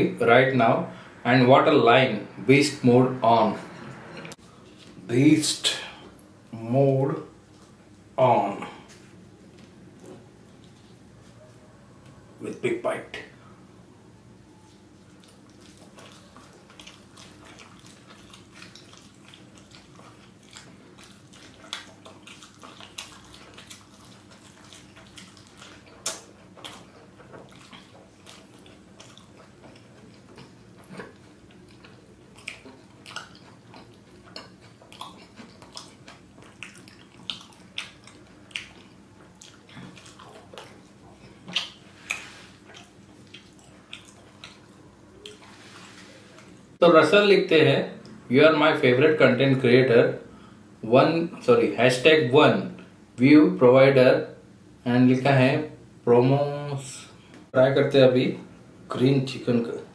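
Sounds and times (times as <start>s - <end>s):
faint steady hum: 0.0s - 59.9s
man chewing food: 3.3s - 5.1s, 7.2s - 12.4s, 14.4s - 46.8s.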